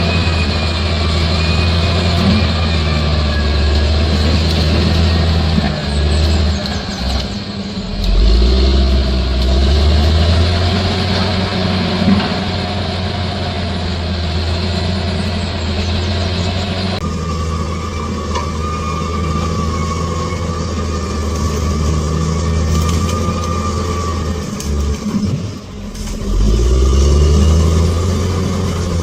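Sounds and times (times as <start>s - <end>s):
bulldozer diesel engine running: 0.0s - 29.0s.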